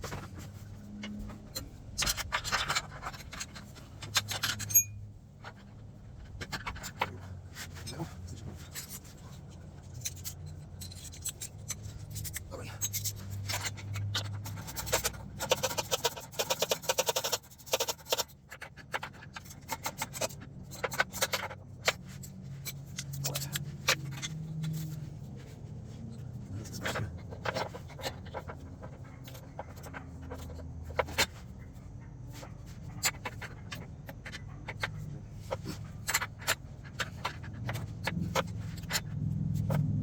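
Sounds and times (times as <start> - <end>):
socket ratchet clicking: 10.0 - 18.4.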